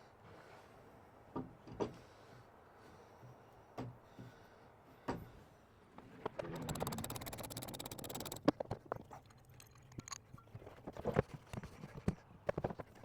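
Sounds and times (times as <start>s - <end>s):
rapid clicks: 6.0s - 10.4s.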